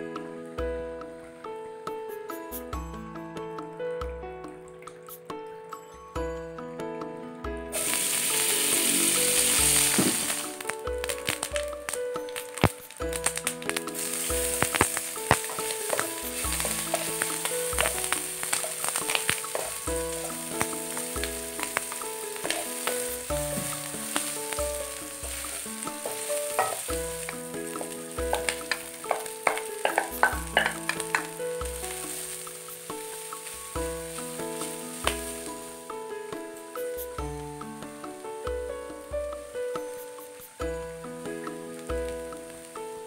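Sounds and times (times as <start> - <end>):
food sizzling in hot oil: 7.7 - 37.6, 39.4 - 43.0.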